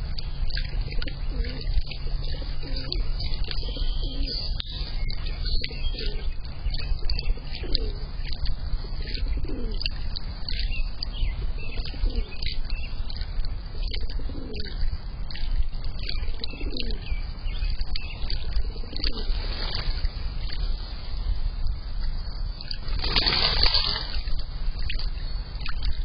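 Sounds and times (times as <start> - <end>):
dove cooing: 0.0 - 12.6, 13.7 - 14.8, 16.0 - 17.2, 17.8 - 20.9
small birds chirping: 0.0 - 26.0
steady low rumble: 0.0 - 26.0.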